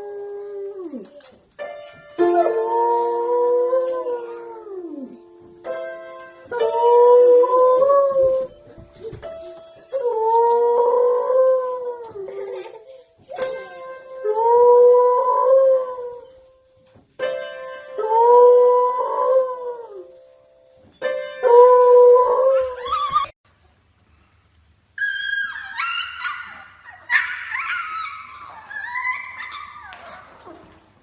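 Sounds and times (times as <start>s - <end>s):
dog howling: 21.5s - 23.4s, 25.0s - 30.8s
dog whining: 22.6s - 23.4s, 25.0s - 30.8s.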